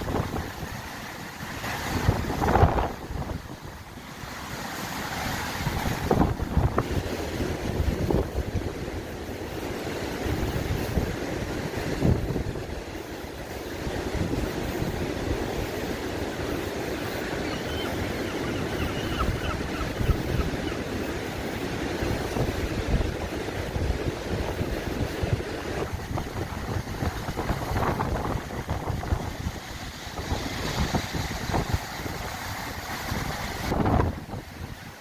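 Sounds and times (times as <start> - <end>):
wind buffeting microphone: 0.0 - 4.1, 5.1 - 35.0
sea waves on shore: 0.0 - 35.0.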